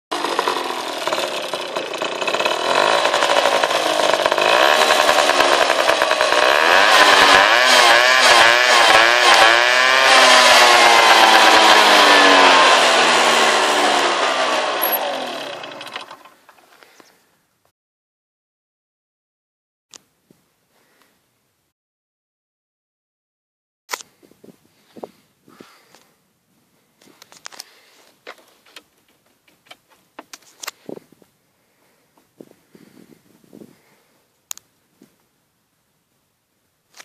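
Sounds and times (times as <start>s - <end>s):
moped engine revving: 0.1s - 16.5s.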